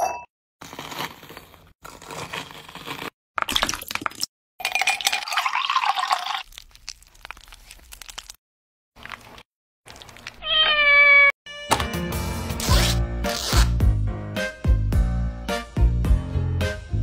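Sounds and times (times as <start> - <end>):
liquid pouring: 3.4 - 8.4, 9.0 - 10.4
ice cubes clinking into glass: 3.5 - 6.4.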